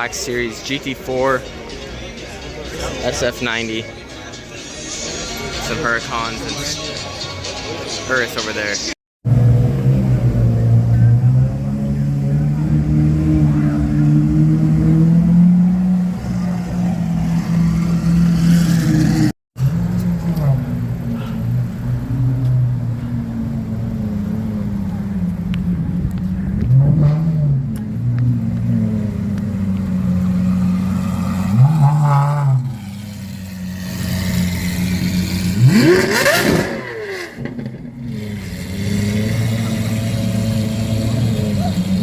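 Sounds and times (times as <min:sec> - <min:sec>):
car engine revving: 0:09.2 - 0:42.0.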